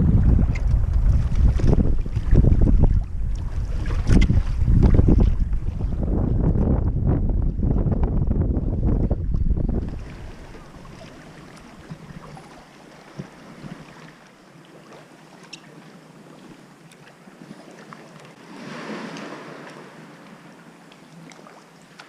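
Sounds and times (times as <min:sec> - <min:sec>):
water lapping around a kayak: 0:00.0 - 0:22.0.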